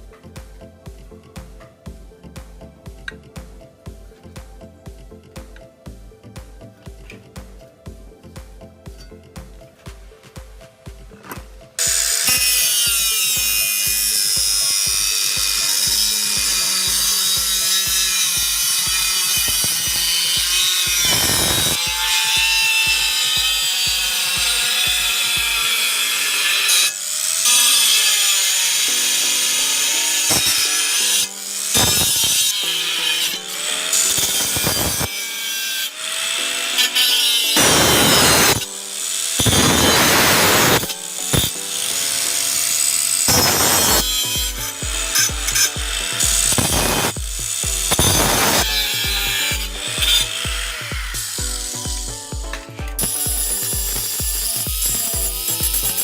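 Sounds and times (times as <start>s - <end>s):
power tool grinding metal: 11.3s - 56.0s.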